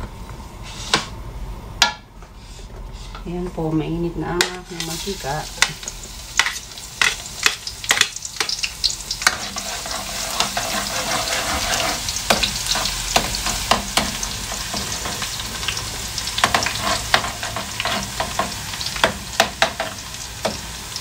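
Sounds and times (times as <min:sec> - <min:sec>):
food sizzling in wok: 0:04.4 - 0:21.0
metal spatula scraping wok: 0:09.2 - 0:15.5, 0:16.4 - 0:18.5.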